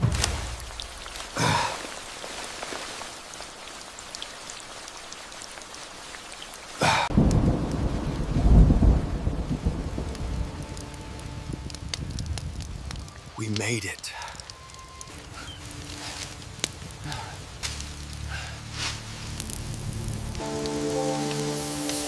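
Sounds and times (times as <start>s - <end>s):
rain hiss: 0.0s - 22.0s
thunderclap: 7.1s - 13.1s
low rumble of thunder: 7.1s - 13.2s.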